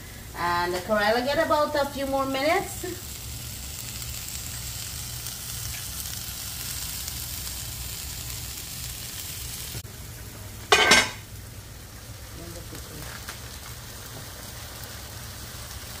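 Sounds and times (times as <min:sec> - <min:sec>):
vegetables sizzling in a frying pan: 0:00.0 - 0:16.0
metal pot lid clanking: 0:10.7 - 0:11.2.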